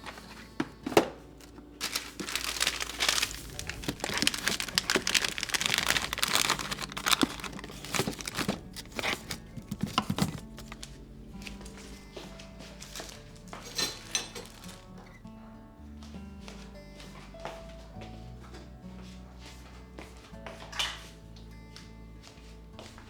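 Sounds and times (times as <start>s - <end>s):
packaging crinkling: 1.2s - 12.1s, 12.7s - 15.0s.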